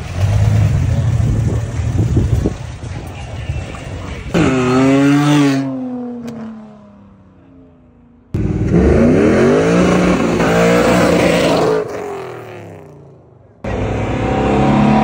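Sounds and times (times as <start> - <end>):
car engine revving: 8.3 - 15.0
car accelerating hard: 8.4 - 13.0, 13.7 - 15.0.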